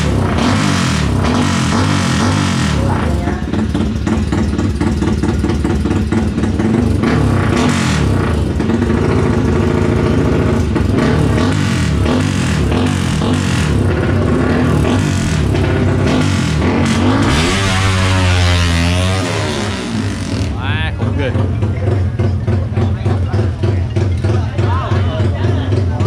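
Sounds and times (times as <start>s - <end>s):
motorcycle engines revving: 0.0s - 26.0s.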